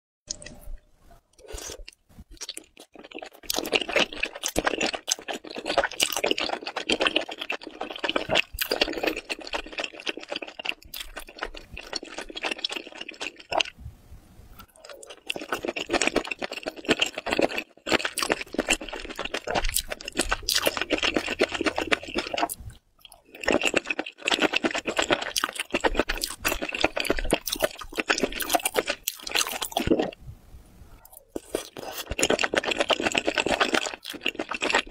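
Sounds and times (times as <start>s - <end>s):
mouth clicks and squelches: 0.3s - 13.8s
wet chewing of noodles: 0.3s - 13.8s, 14.6s - 30.2s, 31.0s - 34.9s.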